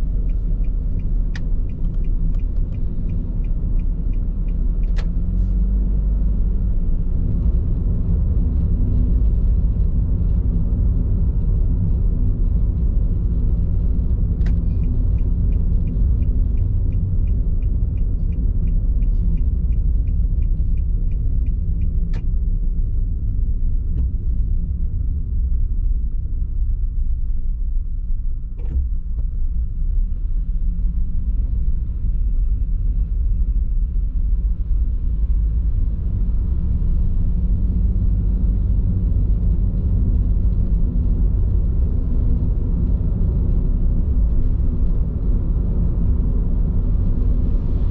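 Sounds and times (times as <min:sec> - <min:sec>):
light regular ticking: 0:00.0 - 0:05.3, 0:12.8 - 0:23.3
tyre and road noise in car: 0:00.0 - 0:47.9.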